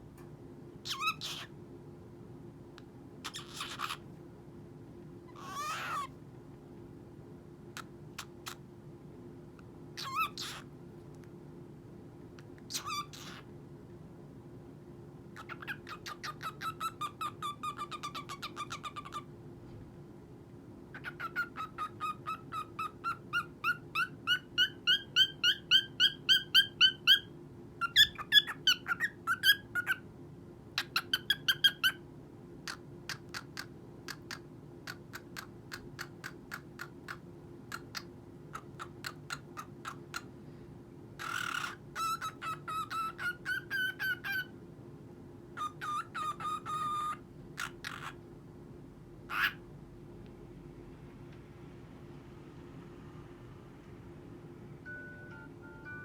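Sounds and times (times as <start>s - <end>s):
cockatiel chirping: 0.8s - 1.5s, 3.2s - 4.0s, 5.3s - 6.1s, 10.0s - 10.6s, 12.7s - 13.4s, 15.4s - 19.3s, 21.0s - 30.0s, 30.8s - 32.0s, 41.2s - 44.5s, 45.6s - 48.2s, 49.3s - 49.6s.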